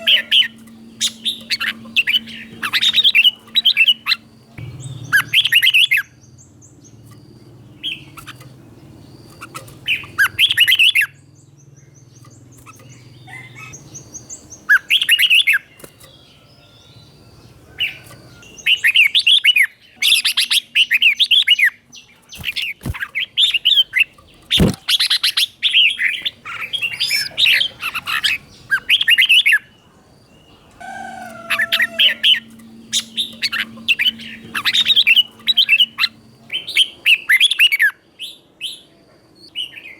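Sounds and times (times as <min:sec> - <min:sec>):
faint low hum: 0:00.0 - 0:39.9
sharp clicks: 0:24.2 - 0:25.3.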